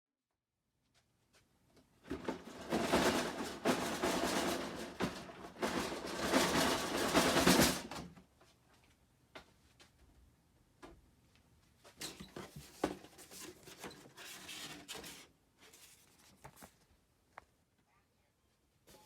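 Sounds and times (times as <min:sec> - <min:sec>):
rustling and clattering: 0:01.9 - 0:08.8, 0:11.7 - 0:17.5.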